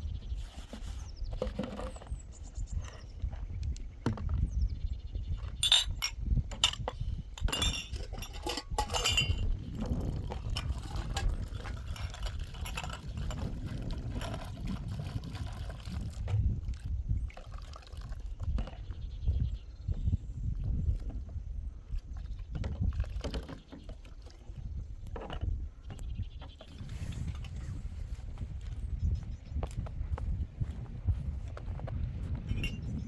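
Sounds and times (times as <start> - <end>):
light clinks and knocks: 5.4 - 9.6, 10.4 - 14.4, 32.3 - 33.0.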